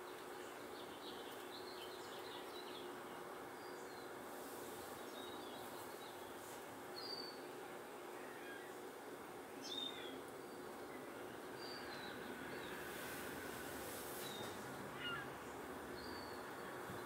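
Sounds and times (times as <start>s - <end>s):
faint hum: 0.0s - 17.0s
faint high bird chirps: 14.2s - 16.4s.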